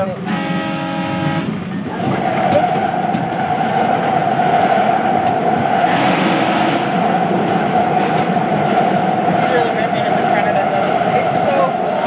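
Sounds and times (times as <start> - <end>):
train rumbling on track: 0.0 - 12.0
wheels clicking over rails: 1.5 - 12.0.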